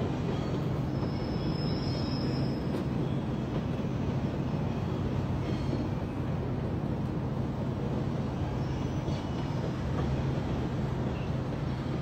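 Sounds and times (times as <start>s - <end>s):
train running on tracks: 0.0s - 12.0s
faint high squeal: 0.4s - 3.2s.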